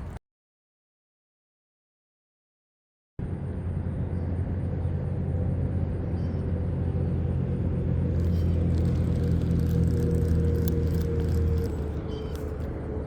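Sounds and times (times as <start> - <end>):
constant hums: 3.2 - 13.0
low engine drone: 3.2 - 13.0
faint light crackles: 8.2 - 13.0.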